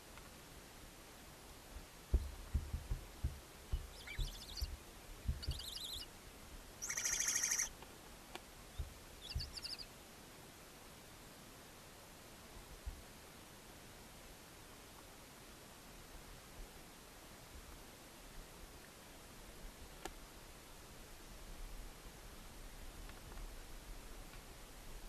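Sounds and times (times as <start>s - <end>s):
thumps against wooden box: 2.1s - 4.0s
owlets raspy calls: 3.8s - 4.8s, 5.4s - 6.0s, 6.8s - 7.7s, 9.2s - 9.8s.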